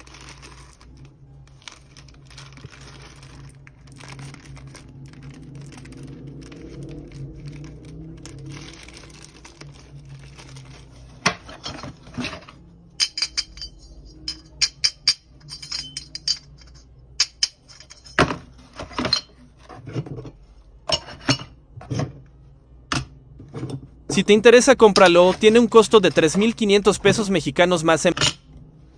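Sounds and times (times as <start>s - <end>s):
rustling: 0.0s - 12.6s
low hum: 0.0s - 19.6s
hard objects clinking and knocking: 1.7s - 22.2s.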